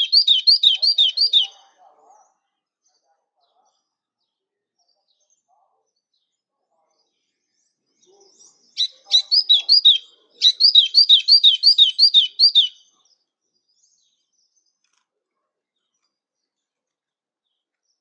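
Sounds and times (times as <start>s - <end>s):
songbird singing high notes: 0.0s - 1.6s, 8.8s - 12.8s.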